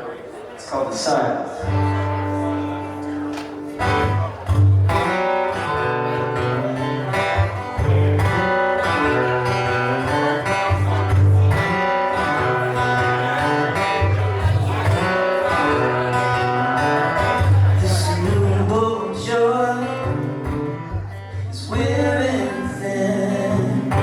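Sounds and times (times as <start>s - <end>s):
plucked guitar notes: 1.6s - 24.0s.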